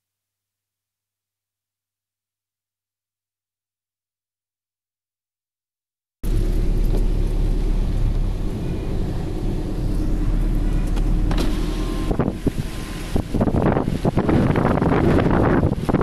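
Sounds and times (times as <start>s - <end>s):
loud rushing noise with rumble: 6.2s - 16.0s
wind gusting on microphone: 6.2s - 16.0s.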